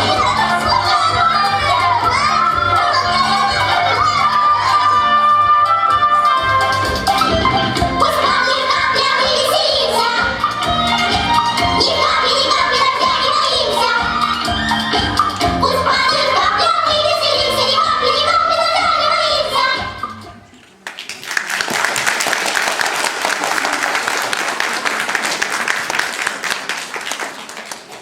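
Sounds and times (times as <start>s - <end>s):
song with singing: 0.0s - 20.8s
audience clapping: 20.5s - 28.0s.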